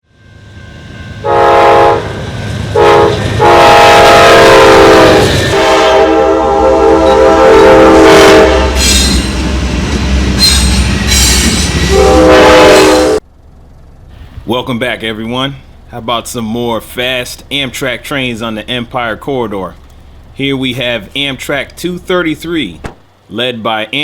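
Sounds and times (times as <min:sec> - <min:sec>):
train rumble and wheel clatter: 0:00.0 - 0:24.0
locomotive air horn blasts: 0:01.2 - 0:09.0, 0:11.8 - 0:13.3.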